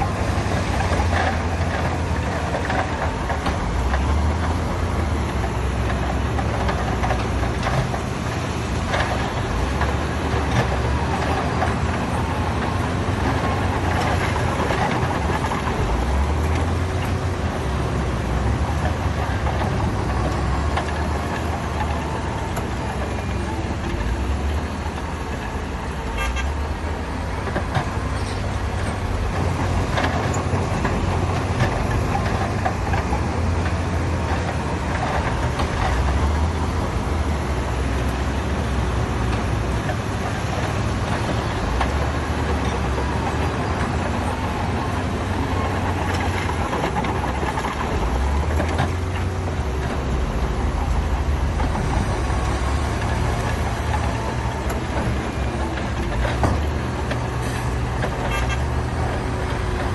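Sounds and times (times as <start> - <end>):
diesel machinery engine rumble: 0.0 - 59.9.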